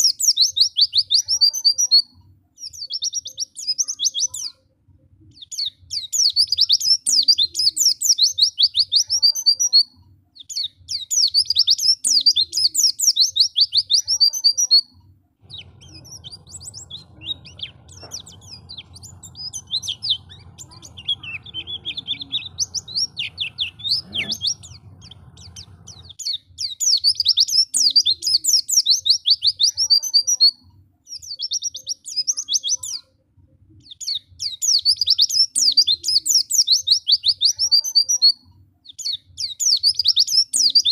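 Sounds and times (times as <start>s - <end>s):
bird twittering song: 0.0s - 33.1s, 33.8s - 40.9s
steady low hum: 15.4s - 26.2s.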